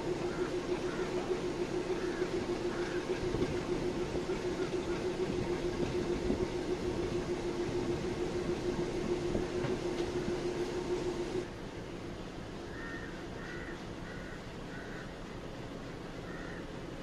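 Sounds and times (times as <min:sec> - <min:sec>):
train wheels rumbling on rails: 0:00.0 - 0:12.5
steady hum: 0:00.0 - 0:12.7.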